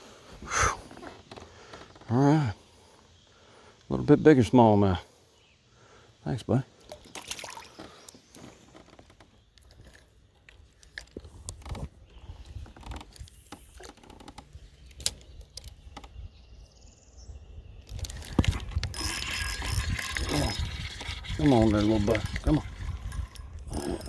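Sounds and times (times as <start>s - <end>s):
fishing tackle clicking: 17.9s - 21.3s, 22.2s - 24.0s.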